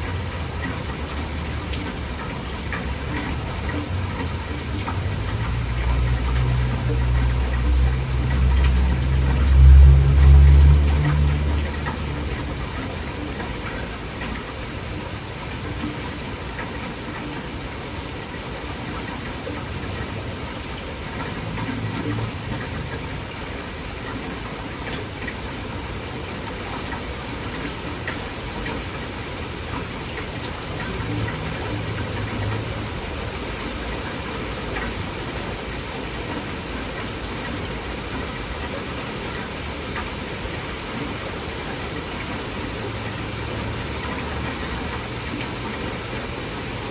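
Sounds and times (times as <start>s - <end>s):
heavy rain: 0.0s - 46.9s
low rumble: 7.8s - 12.7s.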